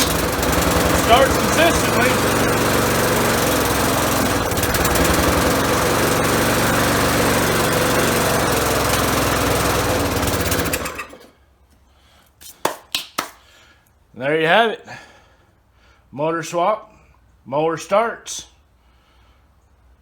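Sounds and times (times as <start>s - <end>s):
lawnmower engine running: 0.0s - 11.4s.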